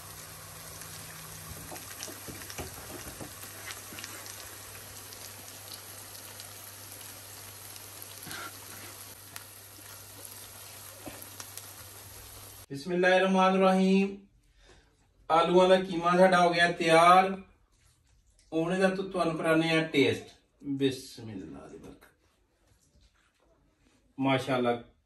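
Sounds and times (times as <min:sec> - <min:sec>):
food sizzling in a frying pan: 0:00.0 - 0:12.7.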